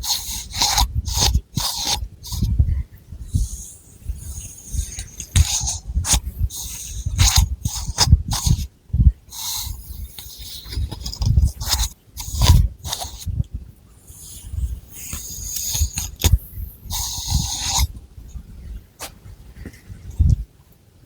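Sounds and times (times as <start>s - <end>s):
fingernails scratching scalp: 0.0s - 2.5s, 3.3s - 8.7s, 9.3s - 13.3s, 14.1s - 17.9s.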